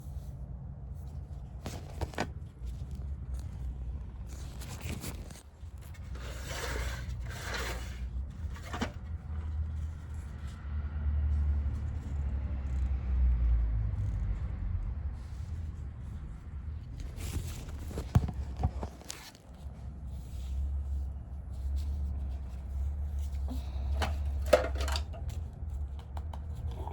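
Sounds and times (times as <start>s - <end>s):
brush scraping over canvas: 1.0s - 10.6s.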